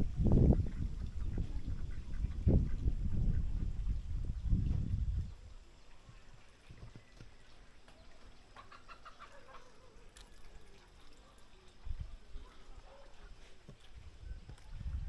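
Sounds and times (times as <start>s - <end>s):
chicken clucking: 8.0s - 10.1s.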